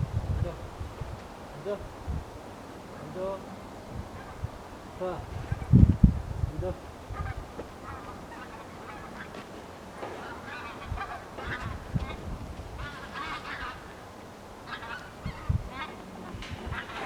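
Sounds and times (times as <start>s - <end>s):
birds honking: 2.9s - 5.7s, 7.0s - 17.0s.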